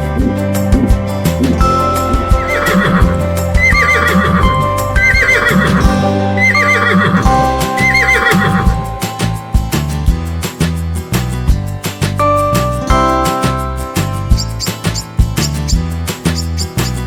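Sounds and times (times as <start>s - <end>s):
background music: 0.0s - 17.0s
horse whinnying: 2.3s - 8.7s.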